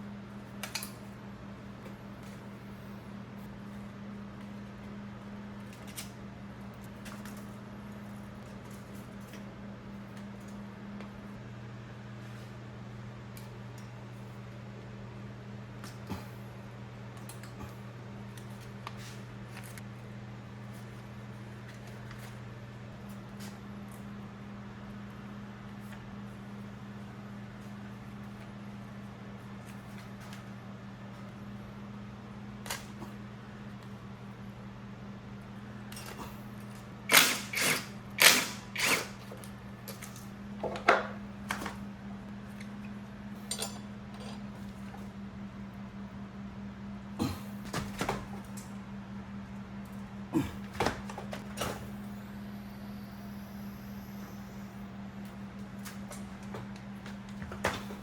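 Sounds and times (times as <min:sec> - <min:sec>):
steady low hum: 0:00.0 - 0:58.0
low hum: 0:41.2 - 0:58.0
metal tools clanking: 0:43.5 - 0:44.5.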